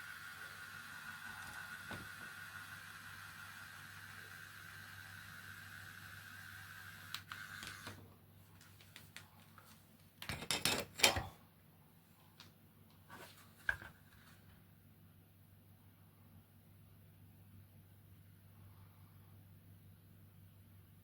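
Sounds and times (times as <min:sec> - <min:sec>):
small motor whirring whine: 0:00.0 - 0:08.0.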